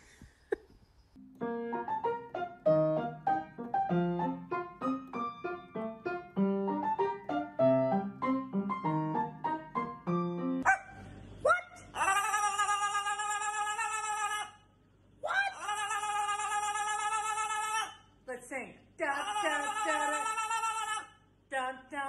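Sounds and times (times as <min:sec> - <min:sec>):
piano melody: 0:01.2 - 0:10.6.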